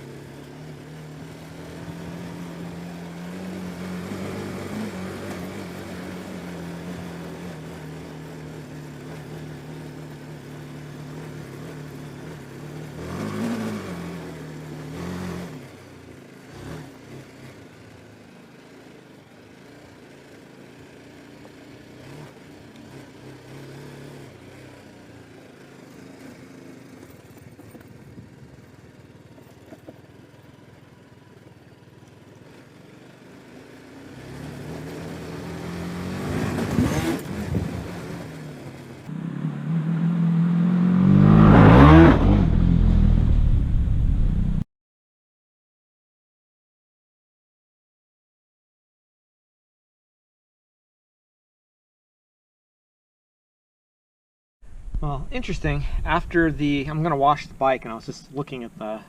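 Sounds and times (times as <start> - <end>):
motorcycle engine revving: 0.0 - 44.6.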